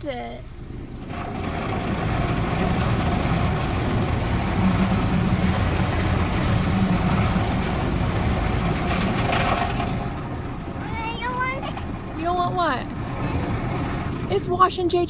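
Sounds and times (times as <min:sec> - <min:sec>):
car wash machinery rumble: 0:00.0 - 0:15.0.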